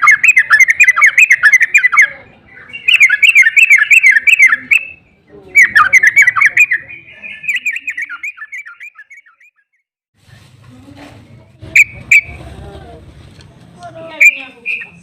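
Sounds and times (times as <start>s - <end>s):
bird chattering song: 0.0s - 9.8s, 11.7s - 12.4s, 14.1s - 15.0s.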